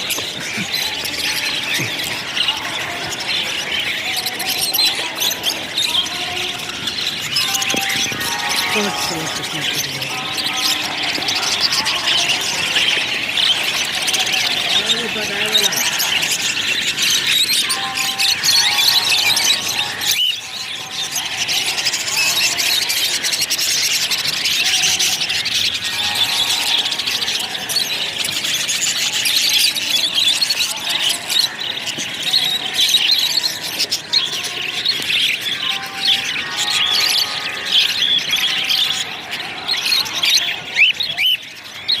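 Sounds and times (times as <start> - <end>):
birds chattering and squealing: 0.0 - 42.0.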